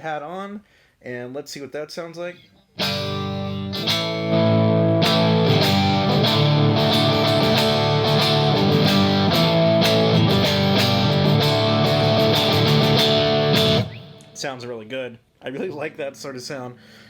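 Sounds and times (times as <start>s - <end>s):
overdriven electric guitar chords: 2.8s - 14.4s.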